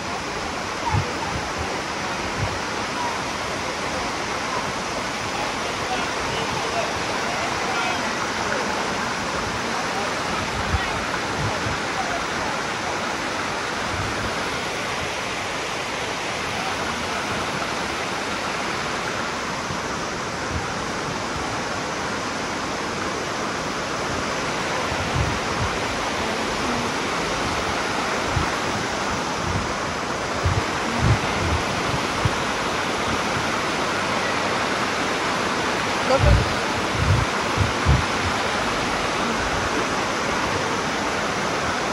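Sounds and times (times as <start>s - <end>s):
waterfall rushing over rocks: 0.0s - 41.9s
short low thumps: 30.4s - 32.4s, 36.2s - 38.4s.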